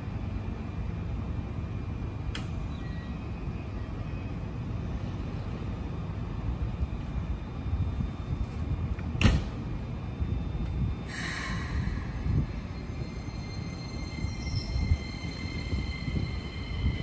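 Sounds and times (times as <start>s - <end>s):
train rumble: 0.0s - 17.0s
air hiss: 11.1s - 12.4s.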